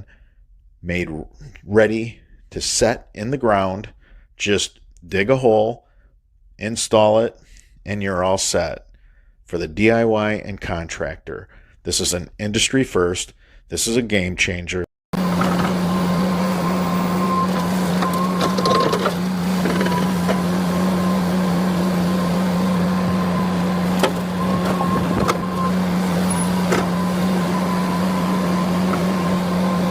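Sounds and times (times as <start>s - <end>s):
machine humming: 15.2s - 29.9s.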